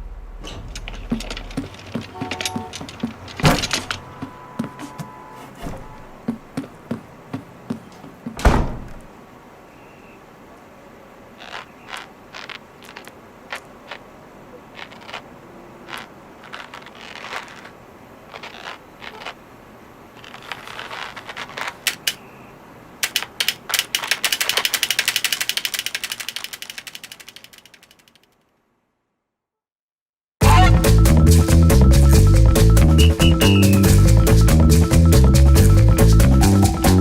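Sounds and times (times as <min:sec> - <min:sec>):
bird pecking computer keys: 0:23.0 - 0:28.3.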